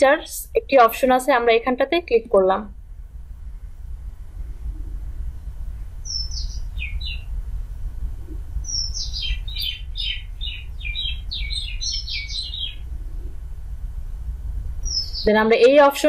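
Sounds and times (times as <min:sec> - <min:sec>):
steady low hum: 0:00.0 - 0:16.0
bird chirping: 0:06.0 - 0:07.4, 0:08.2 - 0:13.3, 0:14.8 - 0:15.3.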